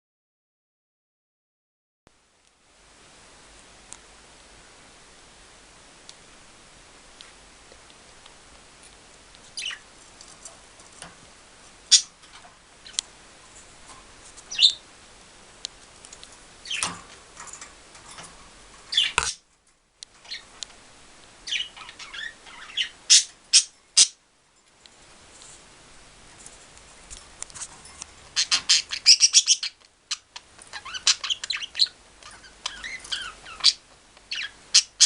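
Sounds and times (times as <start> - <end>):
budgerigars chirping: 9.6 - 9.9, 11.9 - 12.2, 14.5 - 14.8, 16.6 - 16.9, 18.9 - 19.4, 20.3 - 20.6, 21.4 - 24.2, 28.3 - 35.0.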